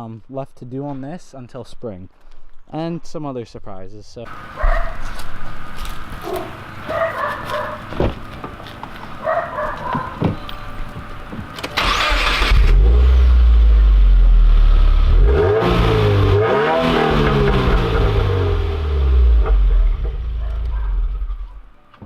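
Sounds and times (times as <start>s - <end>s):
car engine running: 4.3s - 21.6s
car engine cranking and starting: 11.0s - 21.6s
car engine revving: 11.8s - 21.6s.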